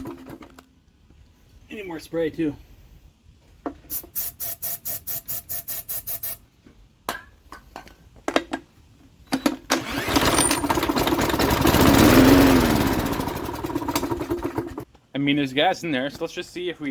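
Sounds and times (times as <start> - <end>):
lawn mower engine running: 0.0 - 0.6, 9.4 - 14.8
engine cranking pulses: 9.6 - 14.8.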